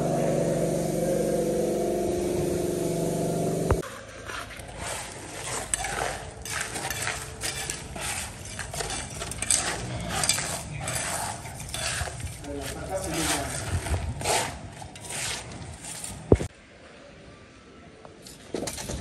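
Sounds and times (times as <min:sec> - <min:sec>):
hard objects clinking and scraping: 0:04.2 - 0:16.5.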